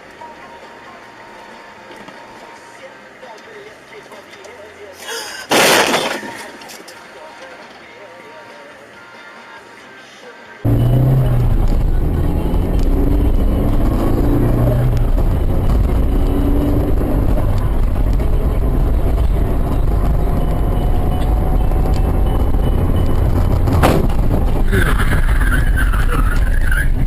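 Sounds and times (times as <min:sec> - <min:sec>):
vehicle engine and road noise: 0:00.0 - 0:27.0
pitched engine drone: 0:10.7 - 0:27.0
sharp knock: 0:23.8 - 0:24.2.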